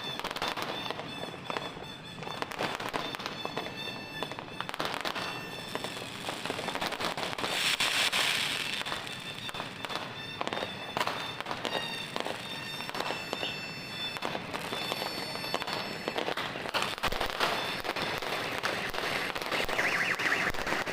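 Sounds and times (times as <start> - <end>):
fireworks bangs and crackles: 0.0 - 20.9
high steady tones: 19.6 - 20.9.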